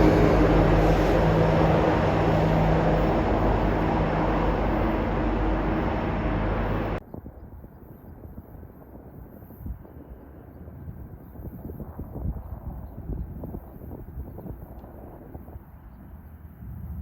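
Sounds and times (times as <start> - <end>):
diesel engine drone: 0.0 - 7.0
freight train rumble: 0.0 - 7.0.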